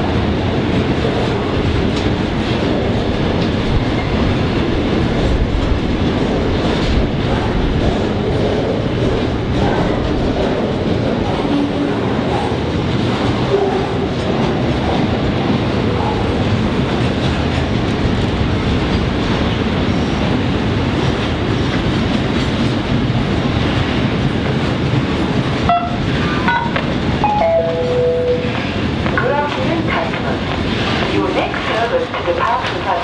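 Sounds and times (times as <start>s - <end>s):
train wheels on rails: 0.0s - 33.0s.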